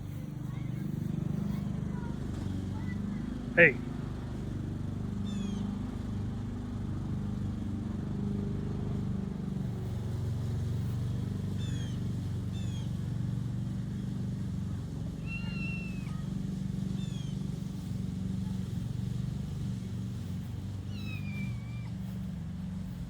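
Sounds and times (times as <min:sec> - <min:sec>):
kitten meowing: 0:20.9 - 0:22.0.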